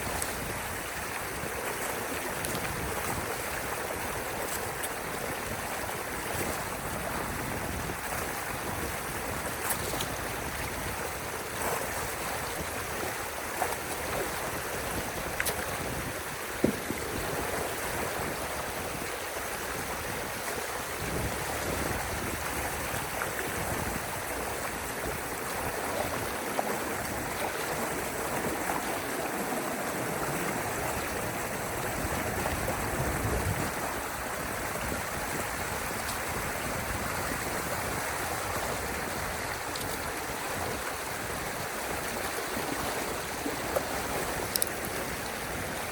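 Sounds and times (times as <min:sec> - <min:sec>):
water rushing through channel: 0:00.0 - 0:45.9.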